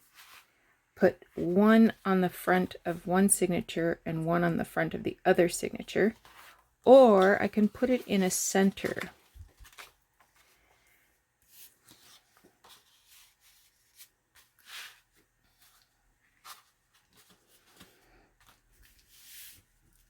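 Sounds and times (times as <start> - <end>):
paper rustling and sliding: 0.0 - 0.6, 6.2 - 20.0
soft brushes on paper: 0.0 - 0.7, 10.3 - 20.0.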